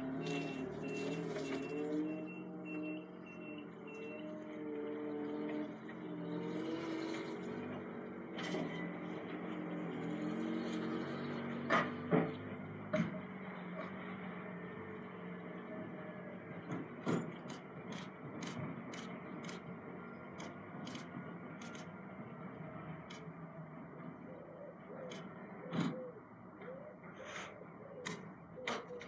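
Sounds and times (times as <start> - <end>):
lorry engine humming: 0.0 - 29.0
sharp clicks: 17.3 - 19.7, 20.3 - 22.0, 23.0 - 23.4.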